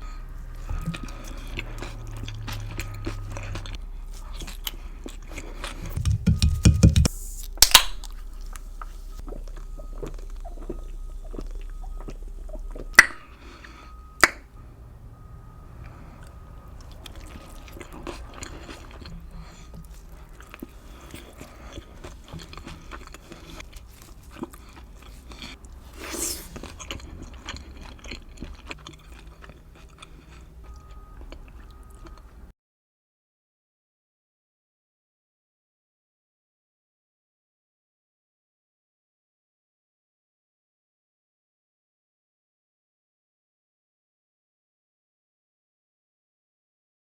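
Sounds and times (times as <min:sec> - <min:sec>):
person chewing: 0:00.0 - 0:14.6, 0:15.8 - 0:32.5.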